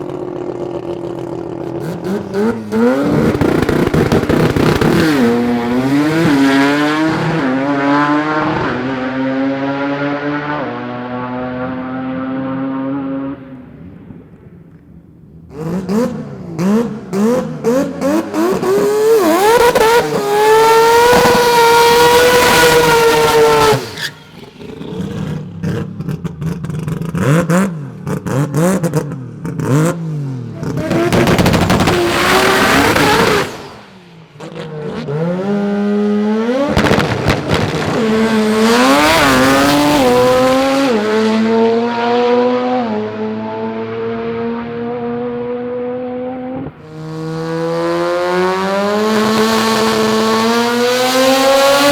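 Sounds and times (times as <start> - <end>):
drag car engines revving: 0.0 - 12.8, 15.5 - 51.9
cars passing loudly: 0.0 - 14.2, 15.5 - 26.6, 27.2 - 51.9
engine crackling on limiter: 0.8 - 6.8.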